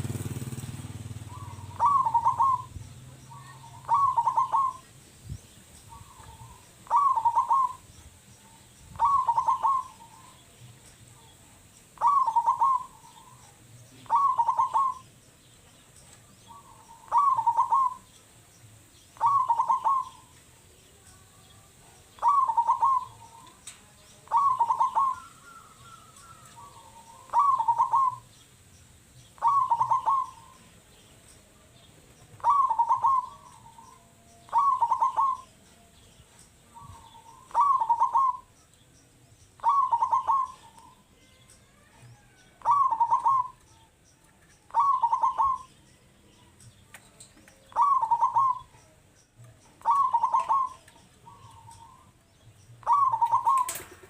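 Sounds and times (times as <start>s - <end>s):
dove cooing: 0.0s - 5.0s, 5.9s - 8.0s, 8.9s - 10.6s, 11.2s - 15.5s, 16.4s - 18.2s, 19.2s - 20.4s, 21.8s - 28.4s, 29.4s - 31.0s, 32.3s - 35.6s, 36.7s - 38.5s, 39.6s - 41.1s, 41.7s - 43.7s, 44.7s - 45.8s, 47.5s - 49.0s, 49.8s - 52.2s, 52.8s - 54.0s.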